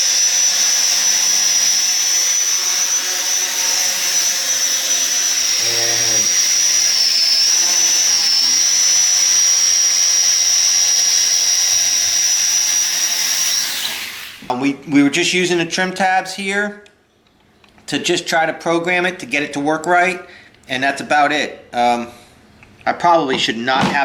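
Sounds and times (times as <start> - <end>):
quadcopter rotors whining: 1.5 - 9.5.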